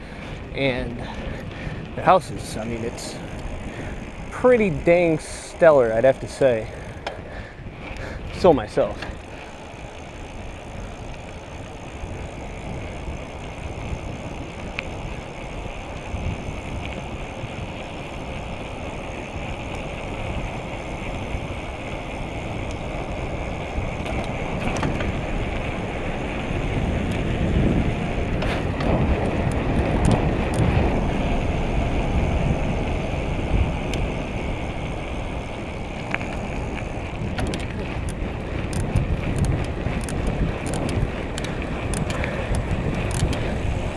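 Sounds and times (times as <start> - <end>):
bicycle tyre and road noise: 0.0 - 43.9
wind rumbling on microphone: 0.0 - 43.9
light clicks: 37.4 - 43.5.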